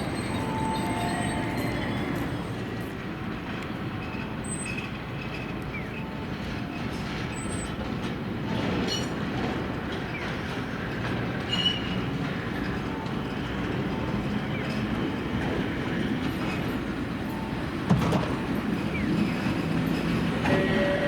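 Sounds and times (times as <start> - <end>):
high wheel squeals: 0.0 - 2.8, 18.8 - 21.0
tram rumbling on rails: 0.0 - 21.0.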